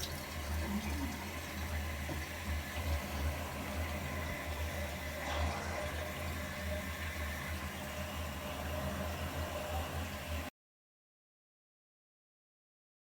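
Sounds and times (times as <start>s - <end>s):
water rushing through drain pipe: 0.0s - 10.5s.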